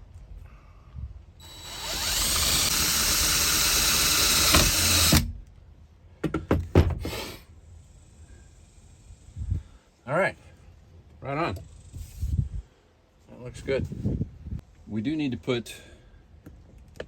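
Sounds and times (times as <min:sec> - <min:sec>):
power drill running: 0:01.4 - 0:05.3.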